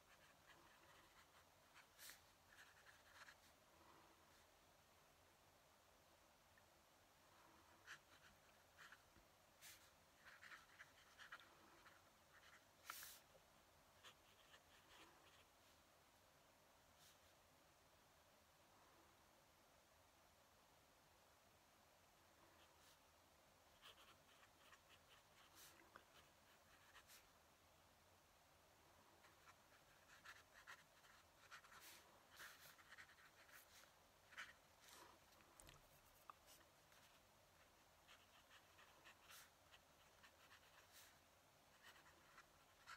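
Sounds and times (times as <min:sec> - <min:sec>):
pen nib scratching on paper: 0:00.1 - 0:03.4, 0:09.6 - 0:13.2, 0:23.7 - 0:27.3, 0:29.2 - 0:42.9.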